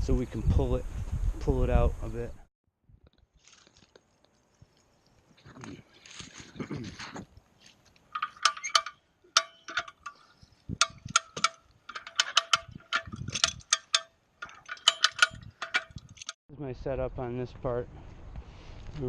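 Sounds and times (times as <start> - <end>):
hand winch ratchet clicking: 8.1 - 16.4.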